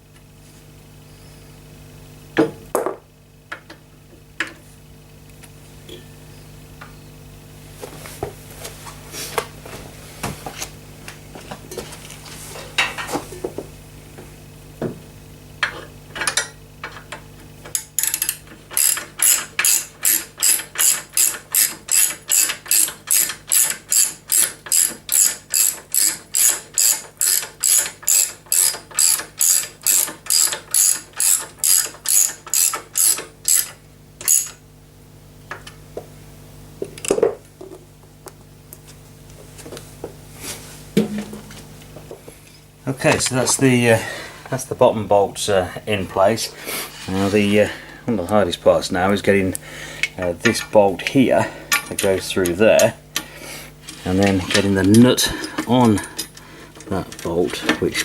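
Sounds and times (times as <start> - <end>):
metal parts clicking and knocking: 15.6 - 34.6
ratchet wrench clicking: 17.7 - 34.6.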